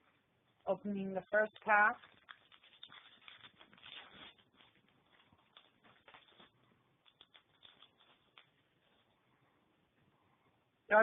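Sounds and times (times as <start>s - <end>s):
wrapper crinkling: 0.6s - 9.2s.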